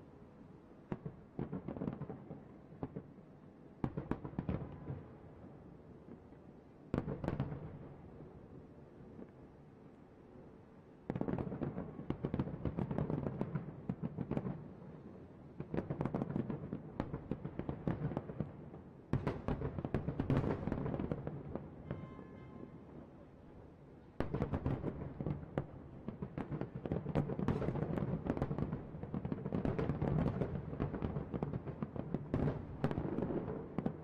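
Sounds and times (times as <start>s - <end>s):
fireworks booming and crackling: 15.6s - 22.0s, 24.2s - 34.0s.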